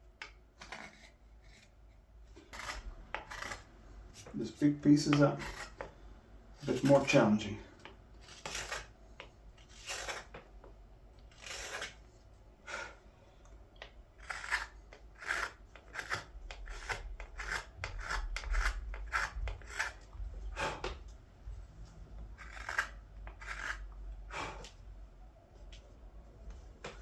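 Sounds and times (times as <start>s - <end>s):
knife carving wood: 0.2s - 6.0s, 6.6s - 10.6s, 11.2s - 12.1s, 13.8s - 21.0s, 22.4s - 24.8s.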